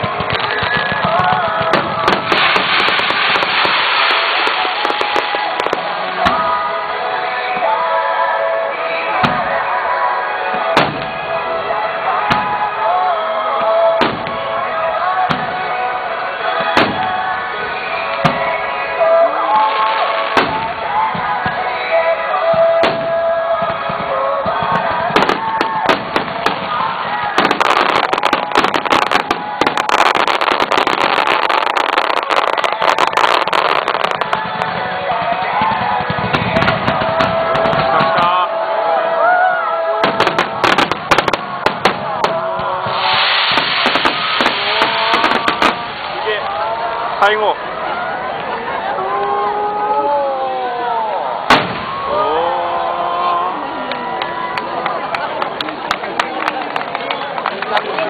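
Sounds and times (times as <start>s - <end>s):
fireworks bangs: 0.0s - 7.8s, 9.2s - 38.8s, 39.9s - 47.4s, 51.4s - 52.2s
music playing: 0.1s - 49.0s.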